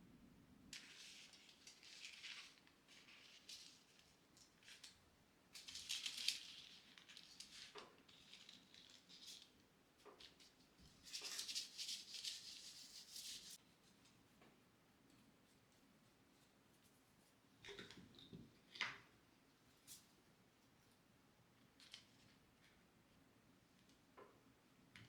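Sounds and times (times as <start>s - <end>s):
faint rustling and crinkling: 0.7s - 25.0s.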